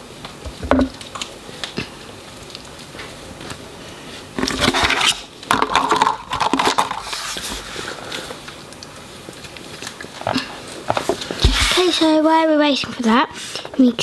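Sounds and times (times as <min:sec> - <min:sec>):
plastic toy handling rustling: 0:10.9 - 0:12.3.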